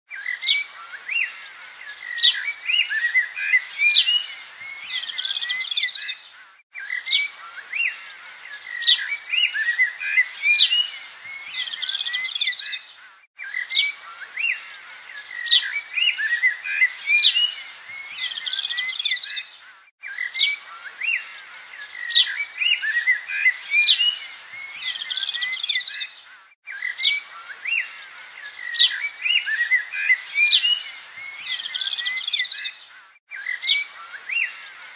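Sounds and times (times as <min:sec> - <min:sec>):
birds chirping and trilling: 0:00.1 - 0:34.9.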